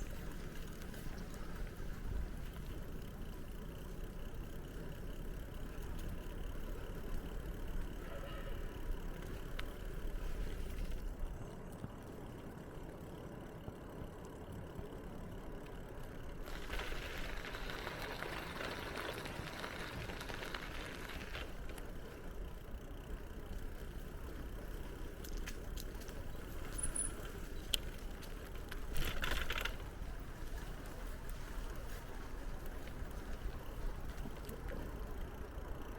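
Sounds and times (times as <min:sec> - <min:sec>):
bicycle rolling rumble: 0:00.0 - 0:35.9
light clicks and rattles: 0:23.0 - 0:35.9.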